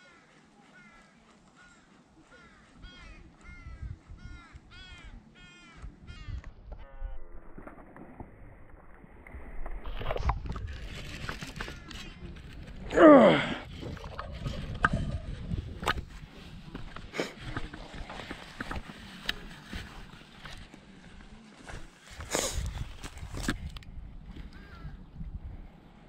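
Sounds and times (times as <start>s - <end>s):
bird calling: 0.0s - 7.8s, 24.5s - 25.0s.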